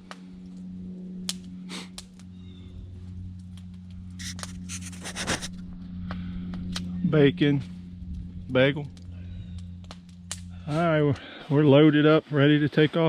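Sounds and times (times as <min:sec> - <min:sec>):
steady low hum: 0:00.0 - 0:13.0
rapid scraping and rattling: 0:03.1 - 0:11.2.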